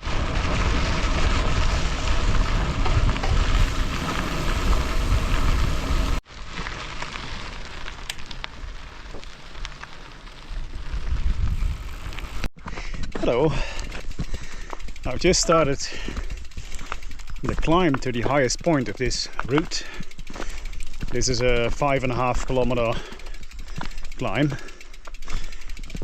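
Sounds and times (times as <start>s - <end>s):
wind rushing over microphone: 0.0s - 6.2s, 10.7s - 12.5s
tyres rumbling on gravel: 0.0s - 26.0s.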